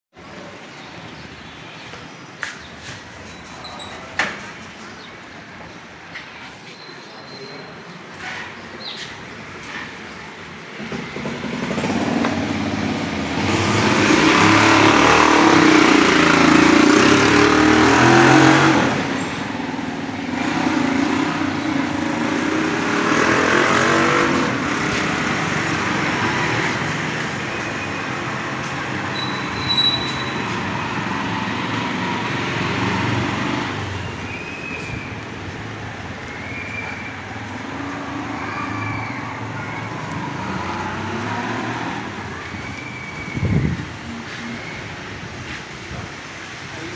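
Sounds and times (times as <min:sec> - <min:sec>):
road traffic passing: 0:00.2 - 0:46.9
vehicle passing close: 0:09.6 - 0:46.8.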